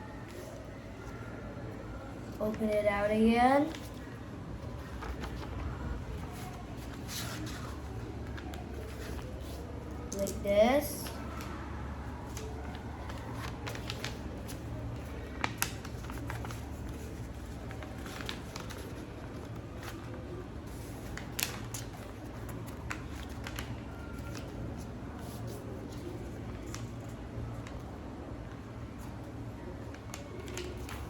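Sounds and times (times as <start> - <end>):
paper being folded and creased: 4.6 - 9.6, 11.3 - 27.8, 29.8 - 31.0.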